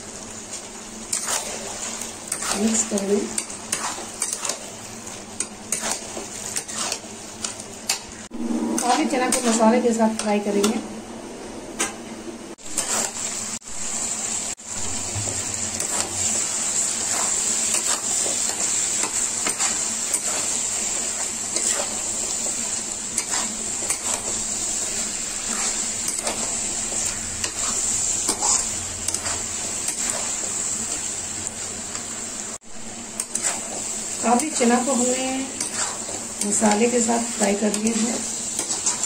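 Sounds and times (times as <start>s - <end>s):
chickpeas sizzling in a pan: 0.0s - 10.7s, 12.6s - 39.0s
spatula scraping and knocking pan: 1.1s - 4.7s, 5.3s - 8.1s, 17.0s - 24.5s, 33.2s - 39.0s.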